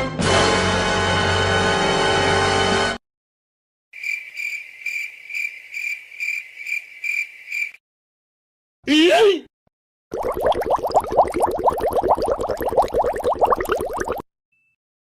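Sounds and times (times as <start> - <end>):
crickets chirping: 4.0 - 7.8.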